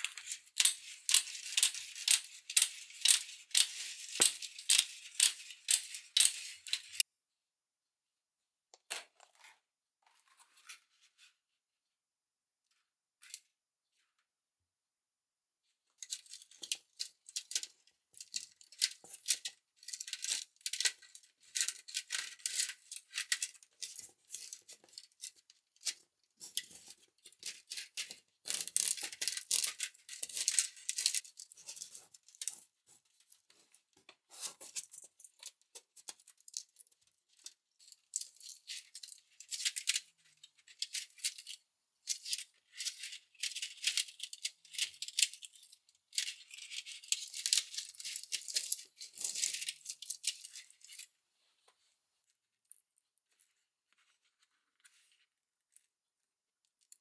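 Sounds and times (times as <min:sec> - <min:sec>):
small hard objects rattling and clicking: 0:00.0 - 0:07.0, 0:26.4 - 0:32.6, 0:42.2 - 0:51.0.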